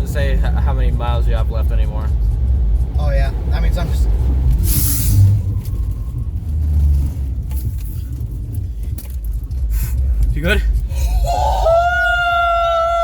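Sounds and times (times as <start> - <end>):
car road and engine rumble: 0.0 - 13.0
brief hiss: 4.6 - 5.4.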